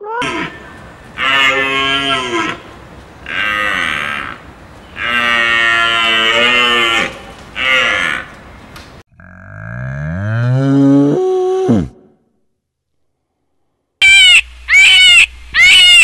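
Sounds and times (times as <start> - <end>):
animal bawling like mooing: 0.1 - 2.6.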